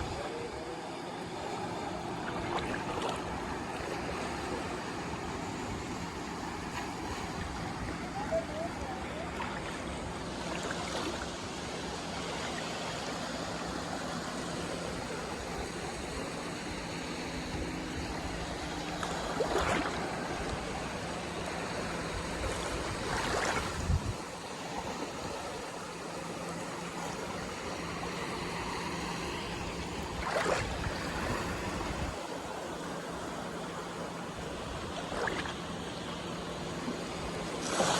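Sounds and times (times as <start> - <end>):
sea waves washing against shore: 0.9 - 37.9
loud wave splashes: 37.5 - 37.9.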